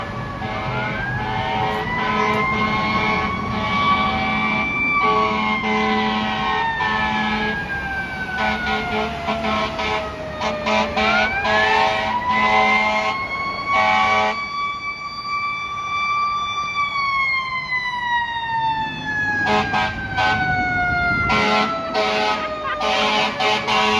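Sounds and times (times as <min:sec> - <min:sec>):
horn blasts: 0:00.0 - 0:07.7, 0:08.3 - 0:14.4, 0:19.4 - 0:23.9
fire engine siren wailing: 0:00.0 - 0:23.9.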